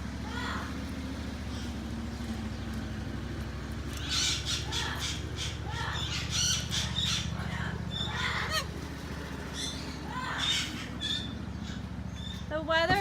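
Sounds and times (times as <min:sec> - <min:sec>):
parrots squawking: 0:04.0 - 0:08.8, 0:09.5 - 0:12.4.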